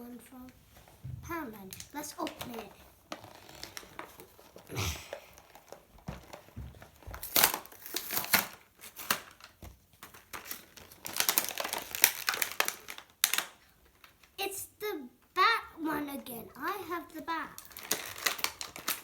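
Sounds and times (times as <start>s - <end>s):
packaging crinkling and tearing: 1.7s - 14.4s, 17.5s - 19.0s.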